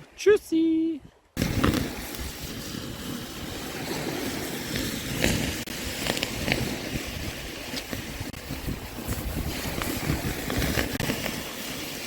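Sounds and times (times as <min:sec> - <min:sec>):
surf washing: 0:00.0 - 0:12.0
wind rumbling on microphone: 0:01.0 - 0:12.0.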